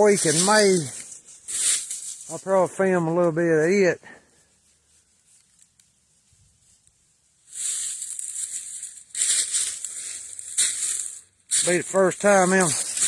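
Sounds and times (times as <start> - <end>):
footsteps crunching dry leaves: 0.0 - 3.8, 7.4 - 13.0.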